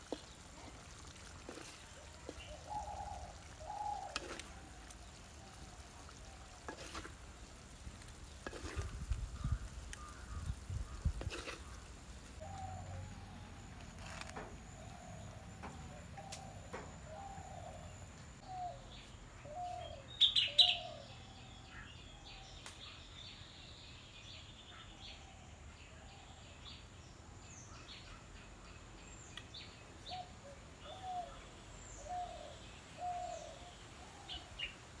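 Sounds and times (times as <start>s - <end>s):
birds chirping: 8.2s - 25.3s
bird low slurred call: 9.3s - 23.0s.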